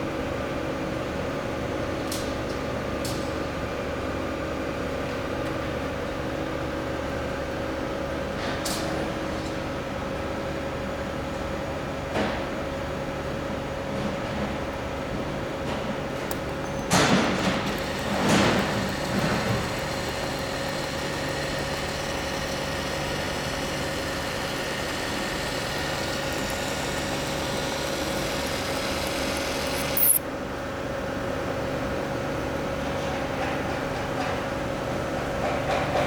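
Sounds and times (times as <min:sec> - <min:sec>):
welding equipment humming: 0:16.3 - 0:30.2.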